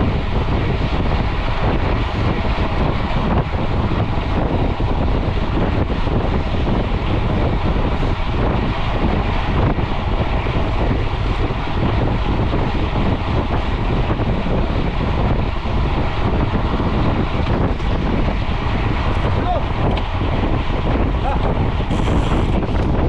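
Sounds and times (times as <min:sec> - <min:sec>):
wind rushing on microphone: 0:00.0 - 0:23.0.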